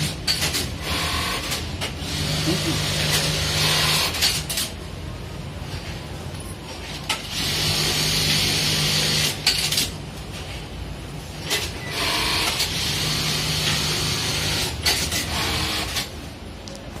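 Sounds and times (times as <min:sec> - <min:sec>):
sewing machine hum: 0:00.0 - 0:04.5, 0:07.3 - 0:09.8, 0:11.4 - 0:16.1.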